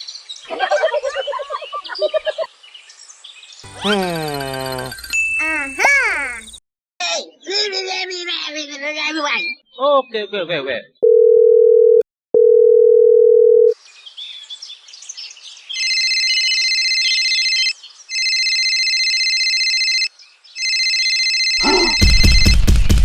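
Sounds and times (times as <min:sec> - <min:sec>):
electronic telephone ringing: 0:11.0 - 0:13.8, 0:15.8 - 0:22.5
telephone dial tone: 0:11.0 - 0:13.8.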